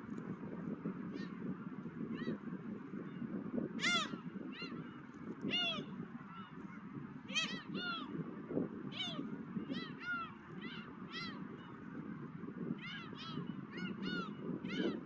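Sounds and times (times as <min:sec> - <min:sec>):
low rush of wind: 0:00.0 - 0:15.0
gulls calling: 0:01.1 - 0:08.3, 0:08.9 - 0:15.0.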